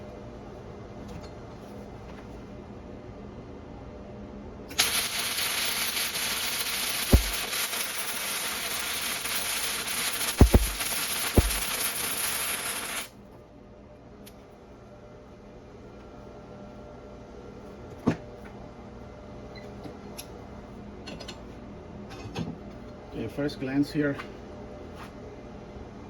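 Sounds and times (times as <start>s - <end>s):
welding arc sharp pops: 4.7s - 13.0s
arc welding crackling sizzle: 4.7s - 13.2s.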